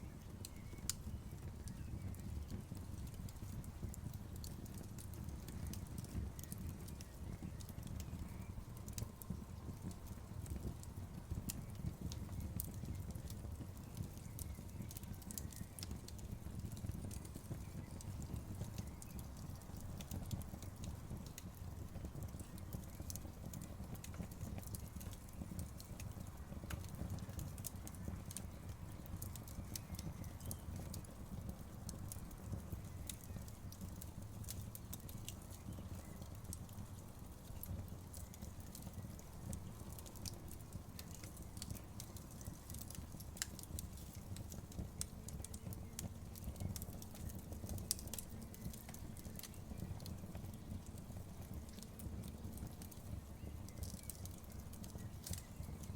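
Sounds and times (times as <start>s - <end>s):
campfire crackling and popping: 0.0s - 55.9s
low rumble of flames: 0.0s - 55.9s.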